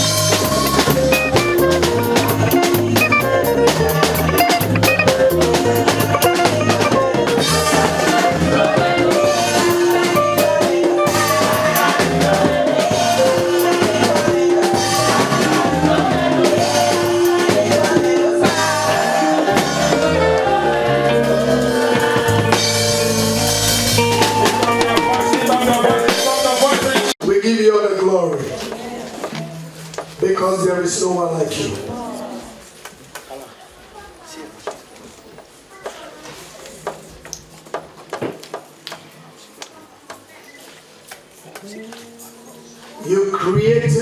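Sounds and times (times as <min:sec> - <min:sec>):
drum kit beat: 0:00.0 - 0:27.2
keyboard chords: 0:00.0 - 0:27.2
people singing: 0:00.2 - 0:27.2, 0:28.4 - 0:29.6.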